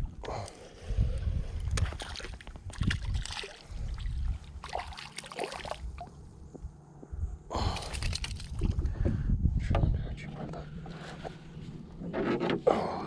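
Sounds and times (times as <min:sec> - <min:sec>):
low wind rumble: 0:00.0 - 0:12.4
water sloshing: 0:01.7 - 0:06.3.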